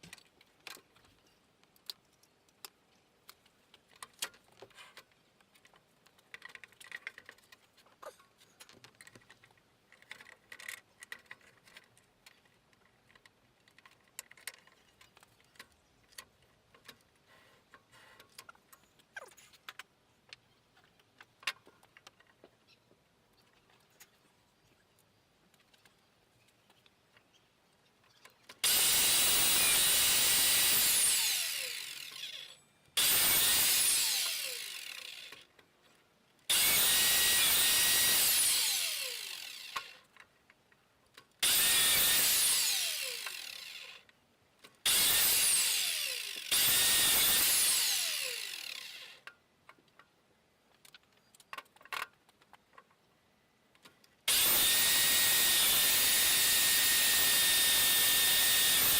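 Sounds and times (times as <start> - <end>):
power tool motor whining: 28.6 - 35.4, 36.5 - 40.0, 41.4 - 44.0, 44.9 - 49.2, 54.3 - 58.9.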